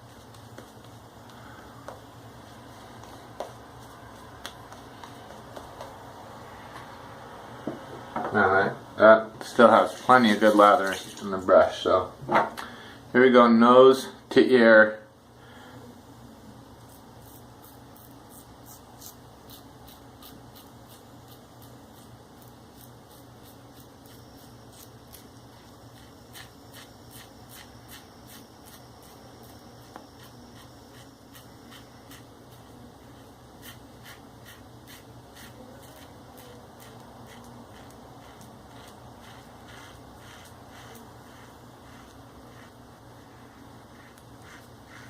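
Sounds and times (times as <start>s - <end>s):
razor scraping stubble: 16.8s - 45.0s.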